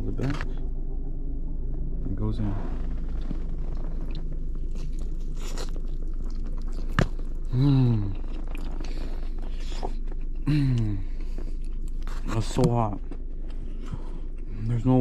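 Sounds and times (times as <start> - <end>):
steady low hum: 0.0 - 15.0
person chewing with crunching: 3.2 - 14.7
person humming mmm: 7.4 - 11.2.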